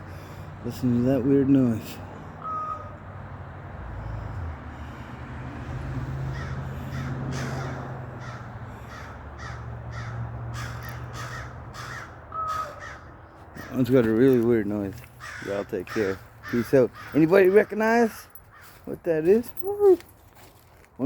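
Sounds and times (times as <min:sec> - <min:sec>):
large birds calling: 0:01.6 - 0:03.1, 0:06.0 - 0:19.7.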